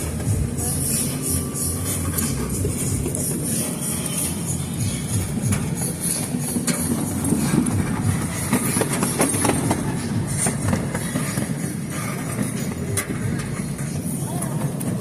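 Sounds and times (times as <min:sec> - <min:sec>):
train rumble: 0:00.0 - 0:15.0
wheel clacks and rattles: 0:00.0 - 0:15.0.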